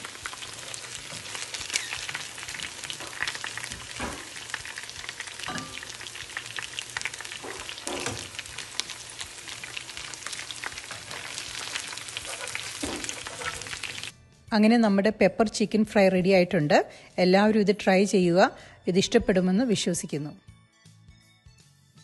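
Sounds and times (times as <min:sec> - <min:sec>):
chicken frying in oil: 0:00.0 - 0:14.1
strainer scraping against pan: 0:12.2 - 0:14.0.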